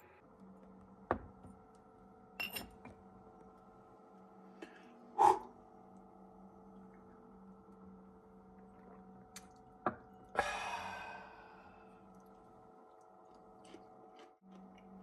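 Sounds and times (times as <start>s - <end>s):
faint steady hum: 0.0s - 15.0s
ringing tableware clink: 2.4s - 2.8s
tableware clicks: 2.4s - 2.9s.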